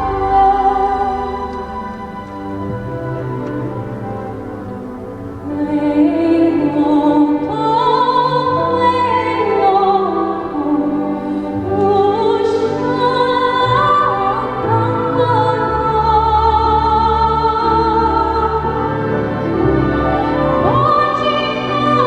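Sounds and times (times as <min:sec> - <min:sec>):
instrumental accompaniment: 0:00.0 - 0:15.2
soprano singing: 0:00.0 - 0:22.0.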